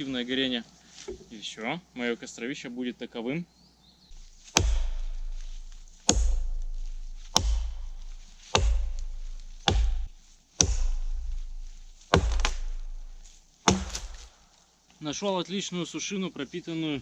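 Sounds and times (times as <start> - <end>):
axe chopping wood: 4.2 - 14.5.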